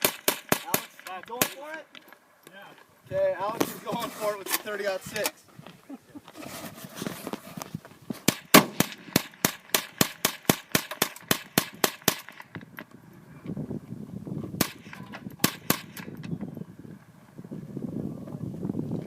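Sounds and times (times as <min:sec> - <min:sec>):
rapid gunfire: 0:00.0 - 0:01.6, 0:08.3 - 0:12.4
single gunshot: 0:08.3 - 0:12.4, 0:14.6 - 0:16.1.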